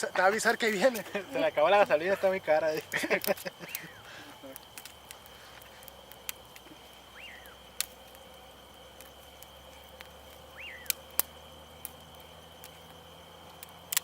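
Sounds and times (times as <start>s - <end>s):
campfire pops: 0.0s - 14.0s
faint high whine: 0.0s - 14.0s
night bird whistling: 3.6s - 4.1s, 6.8s - 7.8s, 10.4s - 12.6s.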